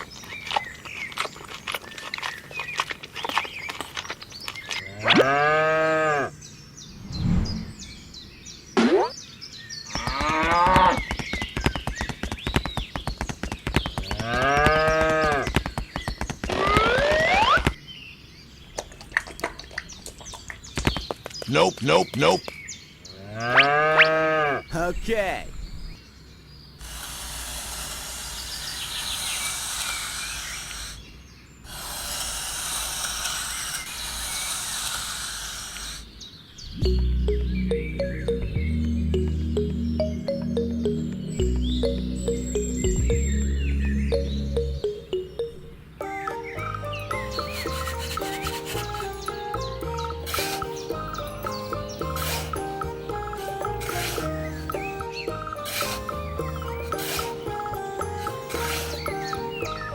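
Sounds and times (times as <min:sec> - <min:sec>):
fast steady clicking: 0:10.0 - 0:17.8
cow mooing: 0:23.2 - 0:24.6
outdoor hiss: 0:26.6 - 0:36.6.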